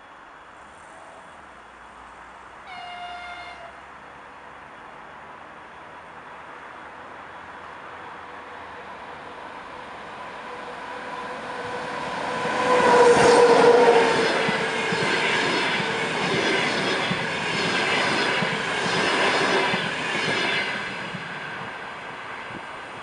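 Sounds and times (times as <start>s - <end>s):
electric locomotive whine: 6.8s - 23.0s
train wheels rumbling and clicking: 11.3s - 23.0s.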